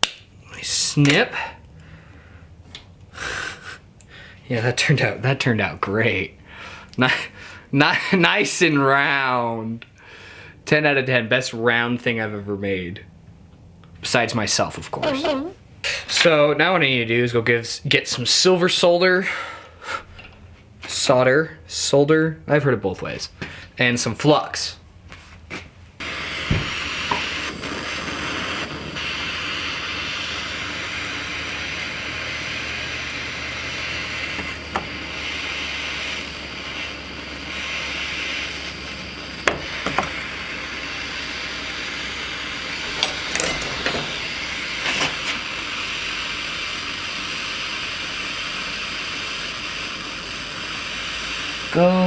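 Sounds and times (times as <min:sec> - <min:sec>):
gas burner flame hissing: 0:14.4 - 0:16.2, 0:26.0 - 0:52.0.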